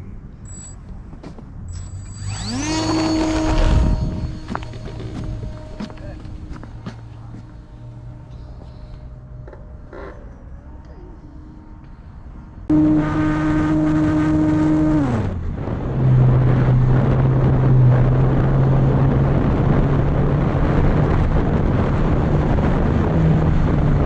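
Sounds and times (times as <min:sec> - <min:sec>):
model plane electric motor: 0:01.8 - 0:07.6
rushing air noise: 0:02.2 - 0:09.4.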